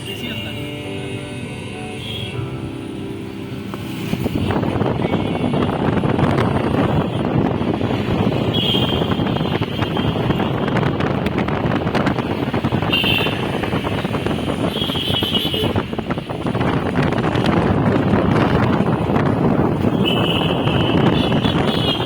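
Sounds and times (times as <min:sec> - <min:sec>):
road and wind noise in a car: 0:00.0 - 0:22.0.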